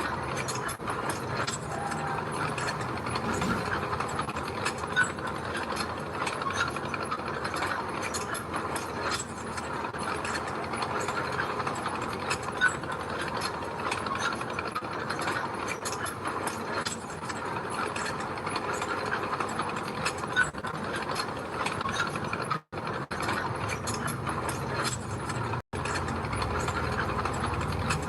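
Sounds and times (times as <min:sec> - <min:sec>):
bulldozer engine running: 0:00.0 - 0:05.4, 0:23.5 - 0:28.0
steel tracks clattering: 0:00.0 - 0:28.0.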